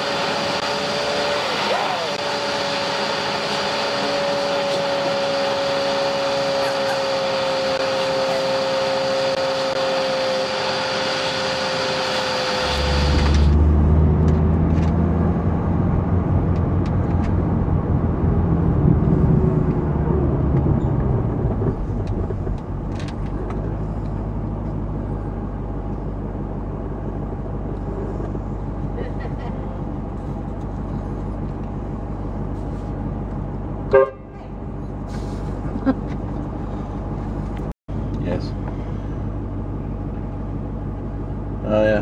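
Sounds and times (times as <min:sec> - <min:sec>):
car driving rumble from inside: 0:12.6 - 0:42.0.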